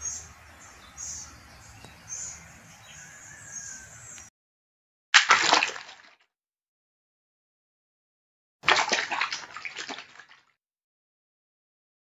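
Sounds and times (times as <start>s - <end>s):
rush of splashing water: 5.2s - 6.2s, 8.6s - 10.5s.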